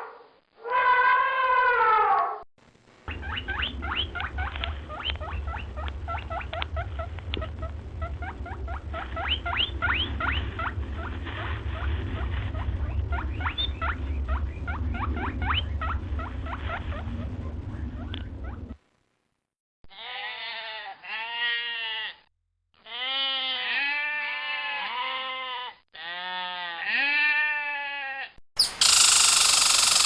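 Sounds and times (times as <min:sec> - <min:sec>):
low rumble: 0:02.6 - 0:18.9
small animals squeaking: 0:03.1 - 0:18.8, 0:28.6 - 0:30.0.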